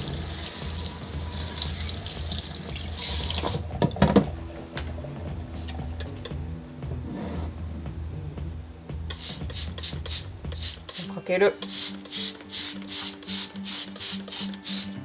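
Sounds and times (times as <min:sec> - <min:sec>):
kitchen tap running into sink: 0:00.0 - 0:04.2
knocks in a sink: 0:01.6 - 0:04.4.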